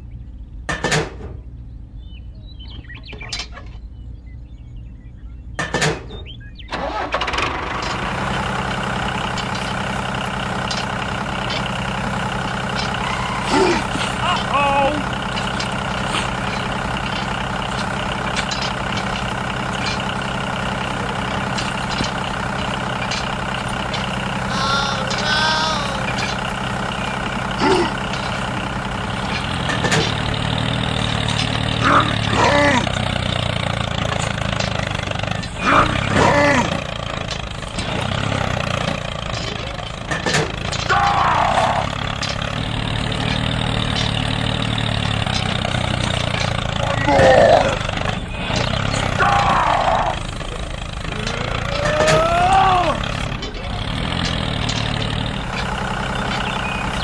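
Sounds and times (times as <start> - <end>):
tractor engine running: 0.0 - 57.0
short high squeaks: 10.6 - 14.5.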